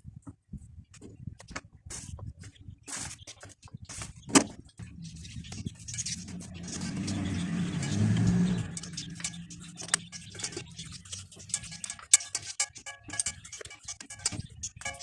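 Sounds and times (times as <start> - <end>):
light clicks and clinks: 5.6 - 15.0.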